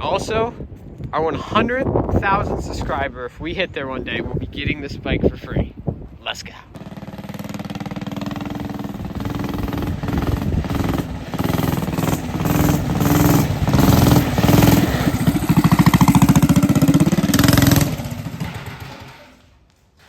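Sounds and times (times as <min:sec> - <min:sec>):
small engine revving: 0:06.8 - 0:19.3.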